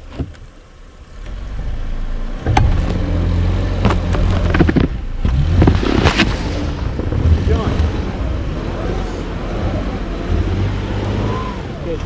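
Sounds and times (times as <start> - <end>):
vehicle engine running: 0.0 - 12.0
sharp knocks and scrapes: 2.4 - 7.9.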